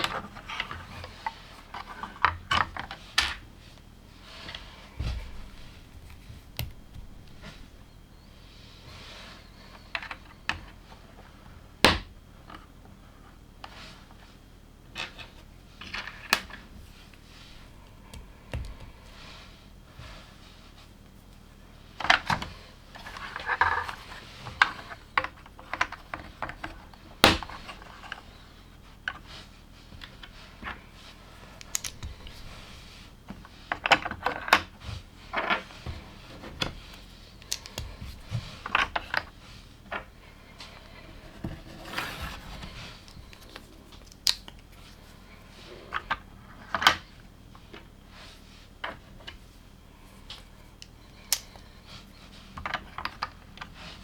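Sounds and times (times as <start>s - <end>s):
plastic bricks clicking together: 31.6s - 32.4s, 37.4s - 37.9s
loose plastic pieces rattling: 31.6s - 32.5s, 36.6s - 39.3s.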